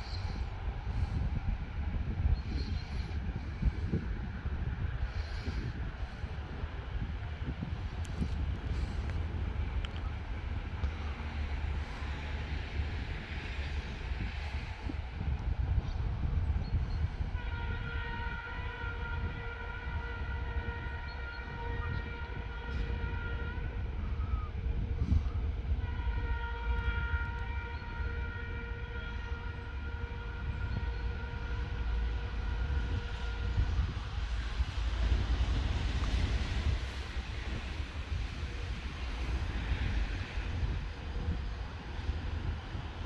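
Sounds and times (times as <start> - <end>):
locomotive air horn blasts: 17.3 - 43.0.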